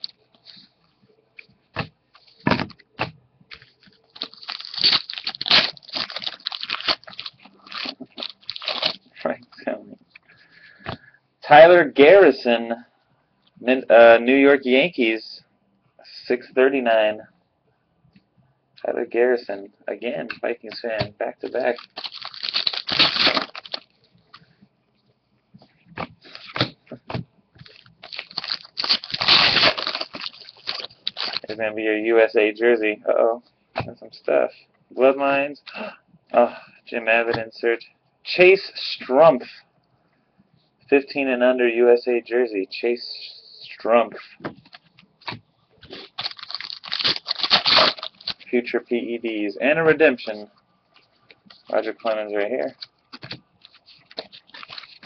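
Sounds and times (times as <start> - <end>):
card wrappers crinkling and tearing: 3.5 - 9.1, 21.4 - 24.4, 27.6 - 31.6, 44.6 - 48.5, 51.4 - 55.0.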